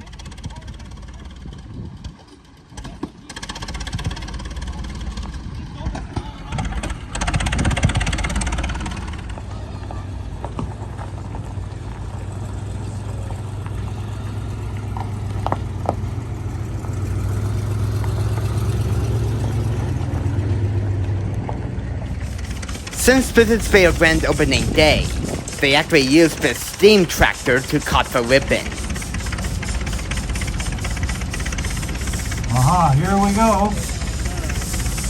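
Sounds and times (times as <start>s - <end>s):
engine humming: 0.0s - 35.0s
short burst of noise: 22.1s - 35.0s.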